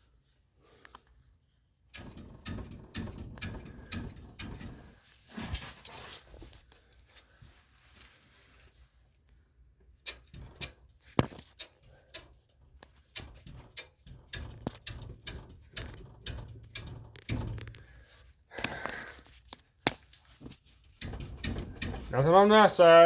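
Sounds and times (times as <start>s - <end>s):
tools clicking and knocking: 1.9s - 5.0s, 10.0s - 18.0s, 18.6s - 22.2s.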